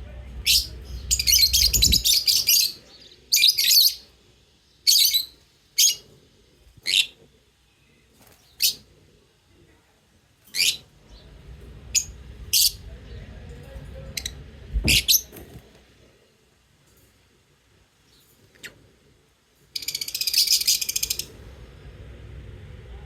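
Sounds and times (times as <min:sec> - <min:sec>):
lovebirds chirping: 0:00.2 - 0:09.0, 0:10.5 - 0:16.5, 0:19.7 - 0:21.5.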